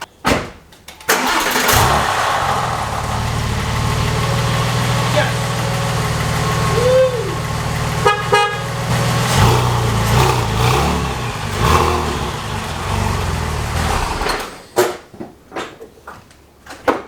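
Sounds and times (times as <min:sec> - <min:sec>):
car engine running: 0:01.3 - 0:14.6
horn toot: 0:06.6 - 0:14.6.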